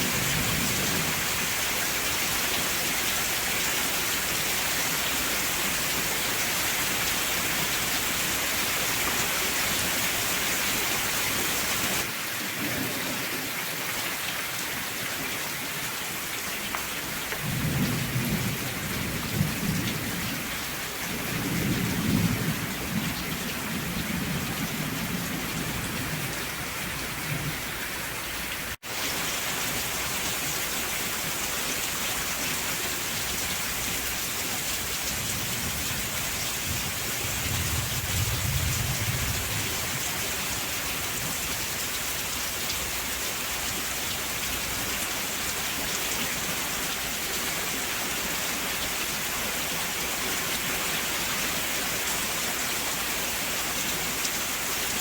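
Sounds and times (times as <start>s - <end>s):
rain falling: 0.0s - 55.0s
thunder rumbling: 17.4s - 27.8s, 35.1s - 40.4s.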